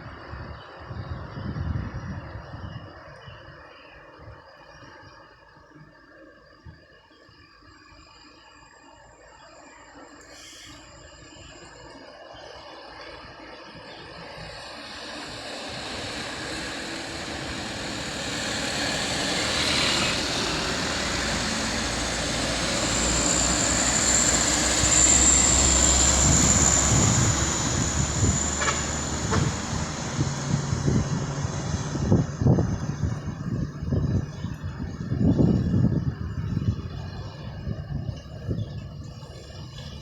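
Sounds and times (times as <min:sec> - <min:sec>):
high steady wheel squeal: 0:07.5 - 0:40.0
train rumbling past: 0:10.1 - 0:40.0.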